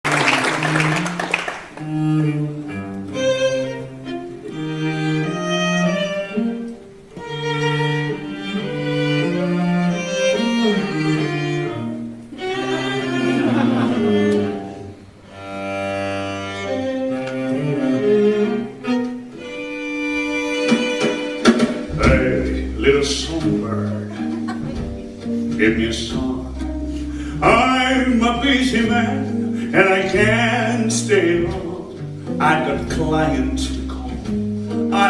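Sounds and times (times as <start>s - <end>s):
low bowed strings: 1.9s - 35.0s.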